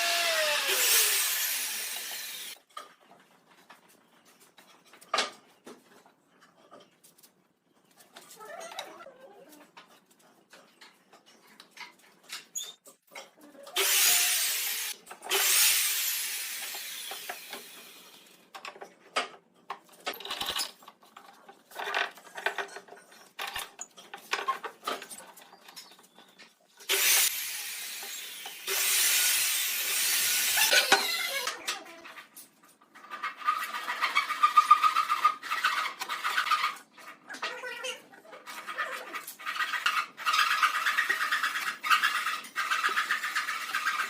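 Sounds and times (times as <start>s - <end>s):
power tool working wood: 0.0s - 2.6s, 13.8s - 18.2s, 26.9s - 31.3s.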